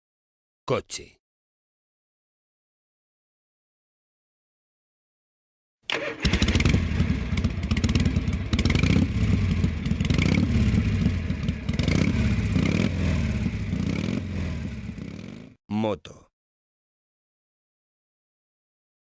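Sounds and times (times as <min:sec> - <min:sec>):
motorcycle engine revving: 0:05.9 - 0:15.6.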